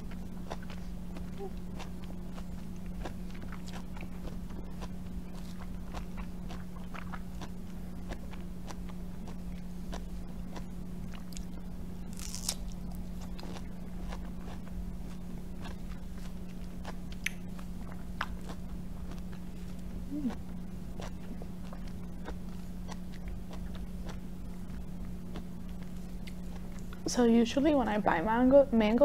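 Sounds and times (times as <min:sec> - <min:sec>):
wet chewing sounds: 0:00.0 - 0:27.1
steady low hum: 0:00.0 - 0:29.0.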